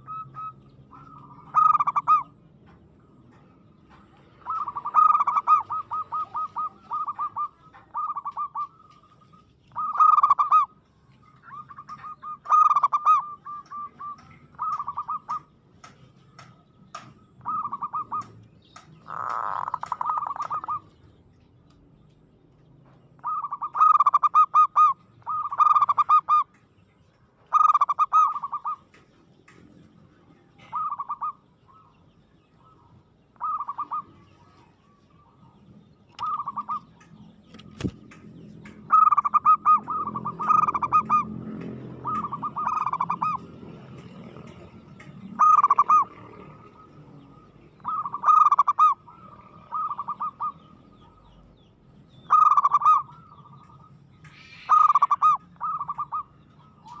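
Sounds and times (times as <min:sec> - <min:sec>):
dove cooing: 0:00.0 - 0:21.0, 0:23.2 - 0:26.6, 0:27.5 - 0:29.0, 0:30.5 - 0:32.0, 0:32.6 - 0:38.0, 0:38.6 - 0:51.6, 0:52.2 - 0:57.0.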